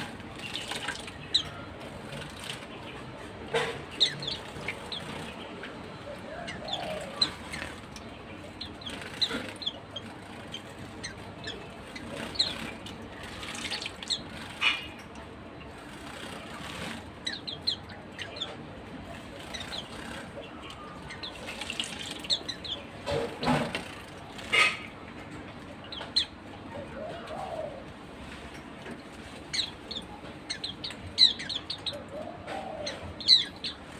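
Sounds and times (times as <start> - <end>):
birds chirping high: 0.0 - 33.9
splashes in bird bath: 0.2 - 2.8, 11.9 - 17.1, 21.1 - 24.9.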